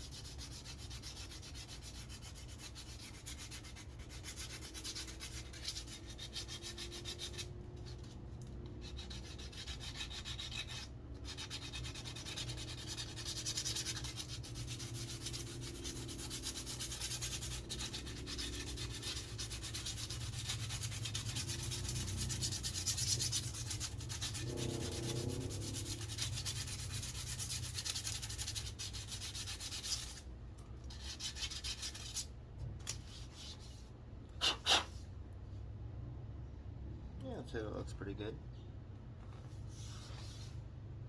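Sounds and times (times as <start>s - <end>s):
sandpaper rubbing on wood: 0.0s - 8.2s, 8.8s - 30.2s, 30.9s - 32.3s
short loud scrapes: 34.4s - 35.1s.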